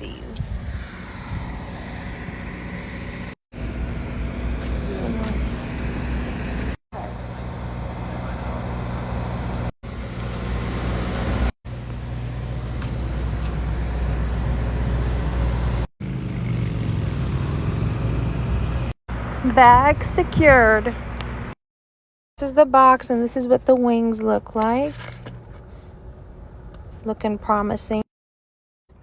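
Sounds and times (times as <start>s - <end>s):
low engine drone: 0.0s - 15.9s
road noise hum: 0.0s - 21.6s, 23.1s - 27.9s.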